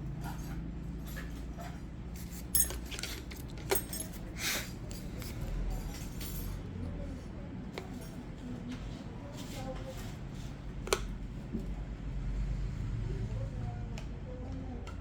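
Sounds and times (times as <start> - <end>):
metal tools clicking: 2.5 - 4.2.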